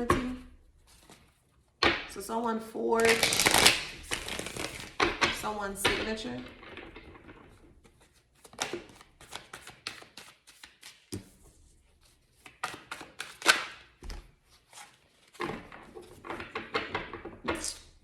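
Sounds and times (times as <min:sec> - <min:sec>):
cards being shuffled: 0:03.0 - 0:05.1, 0:07.2 - 0:16.7.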